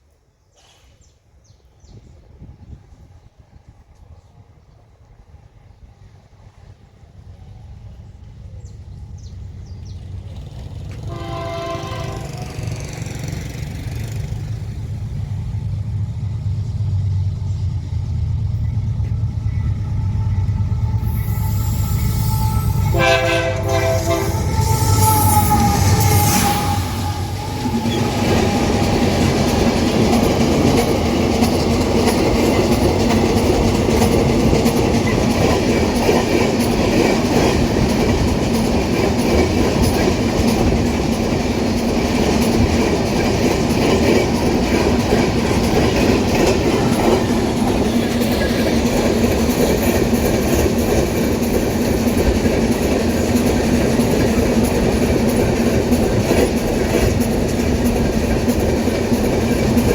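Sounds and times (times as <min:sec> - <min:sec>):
wheels clattering over rail joints: 0:27.6 - 0:59.9.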